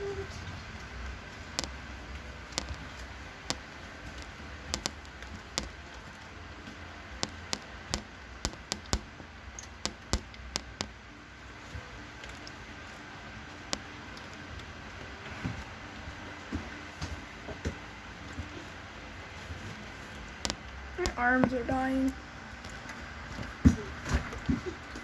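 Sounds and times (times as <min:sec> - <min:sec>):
low background noise: 0:00.0 - 0:25.0
sharp taps and clicks: 0:01.6 - 0:01.8, 0:02.5 - 0:05.9, 0:07.2 - 0:11.0, 0:13.7 - 0:13.9, 0:20.4 - 0:21.9.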